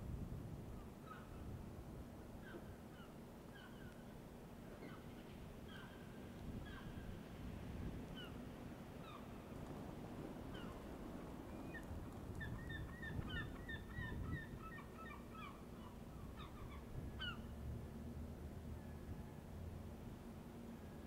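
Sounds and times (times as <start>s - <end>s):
birds calling: 10.4s - 10.9s, 11.5s - 17.5s.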